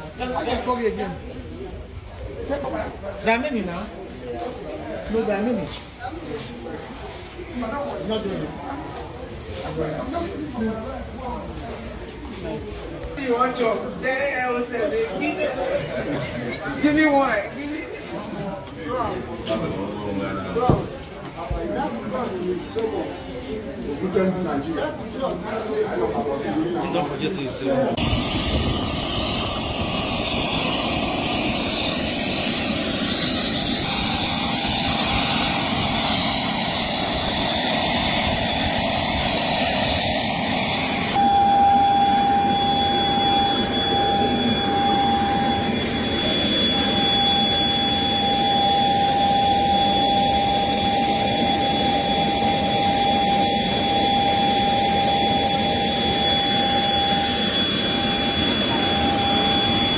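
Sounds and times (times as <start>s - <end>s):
high whine: 27.8s - 59.9s
jet engine rushing: 27.9s - 59.9s.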